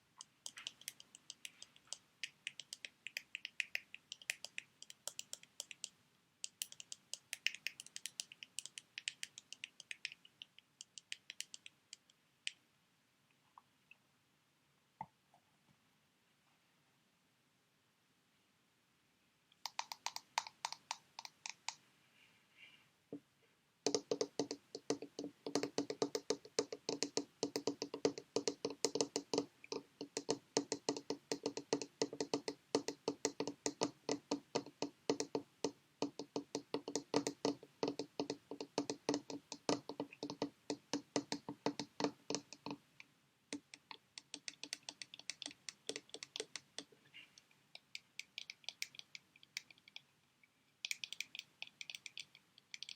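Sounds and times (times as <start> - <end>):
tapping on sheet mask packets: 23.9 - 42.9, 43.5 - 49.9.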